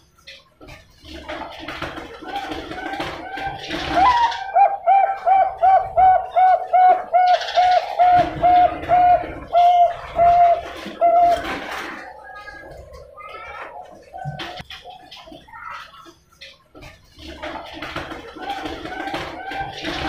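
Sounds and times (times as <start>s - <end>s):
dove cooing: 2.2s - 14.6s, 18.4s - 20.0s.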